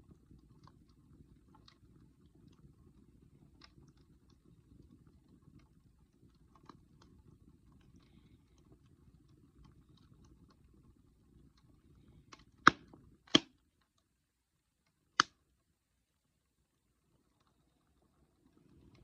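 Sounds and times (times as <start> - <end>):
burning wood popping: 0.0 - 14.2, 14.8 - 15.7
wood fire crackling: 0.0 - 19.0.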